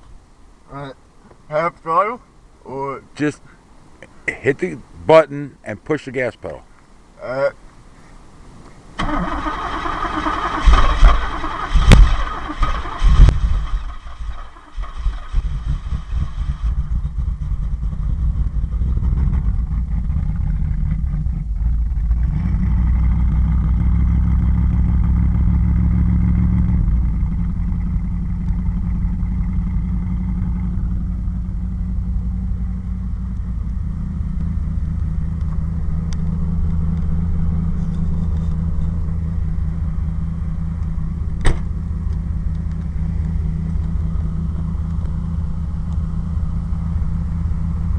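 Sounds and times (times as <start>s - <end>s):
car engine cranking and idling: 9.0s - 47.9s
loud exhaust pops: 10.5s - 31.0s, 32.1s - 39.2s, 40.7s - 45.2s.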